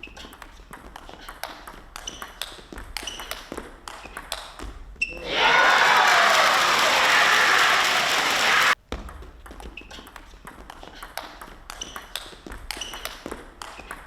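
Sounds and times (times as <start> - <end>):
crowd cheering and applauding: 5.1 - 8.8.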